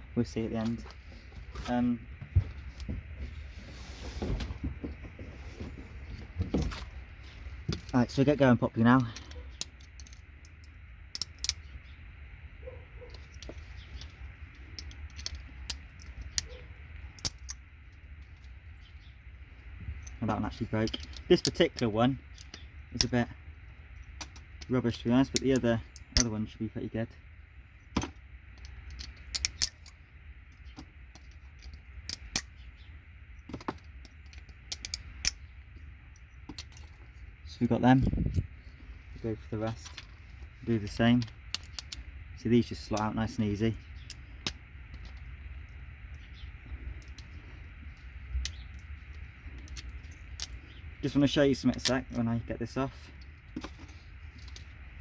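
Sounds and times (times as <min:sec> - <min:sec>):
sharp plastic clicks: 0:09.6 - 0:11.7, 0:28.0 - 0:30.0, 0:33.5 - 0:35.4.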